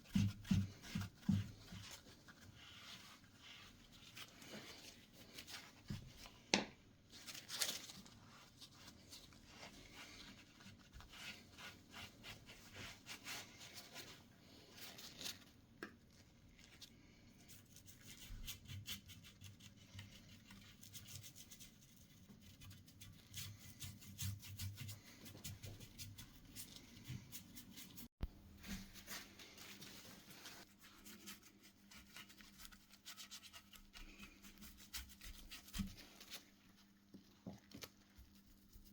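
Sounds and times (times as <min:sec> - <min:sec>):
faint scratching and rubbing: 0:00.0 - 0:06.4, 0:16.7 - 0:38.9.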